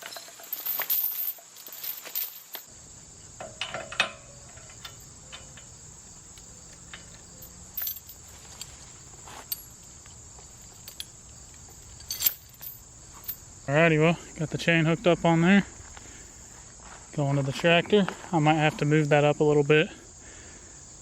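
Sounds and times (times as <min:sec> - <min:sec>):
metal chain clinking and knocking: 0:00.0 - 0:02.7, 0:03.4 - 0:13.5.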